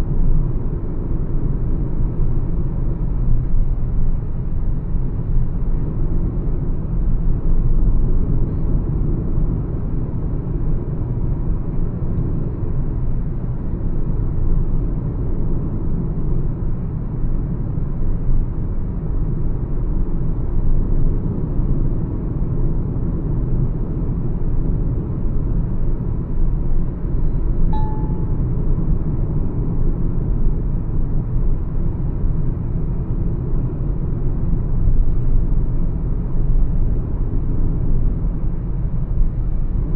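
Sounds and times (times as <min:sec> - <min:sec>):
car cruising road and engine rumble: 0:00.0 - 0:39.9
short beep: 0:27.7 - 0:28.3.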